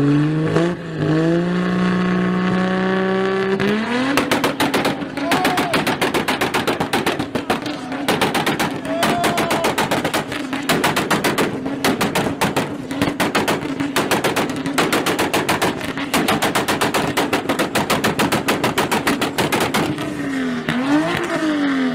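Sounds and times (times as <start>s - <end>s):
car engine rev limiter bangs: 3.6s - 21.5s.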